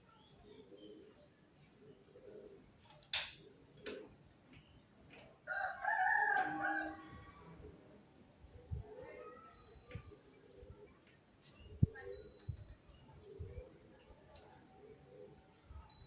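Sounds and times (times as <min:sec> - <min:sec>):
small birds chirping: 0:00.0 - 0:02.8, 0:07.7 - 0:16.0
rooster crowing: 0:05.5 - 0:07.3.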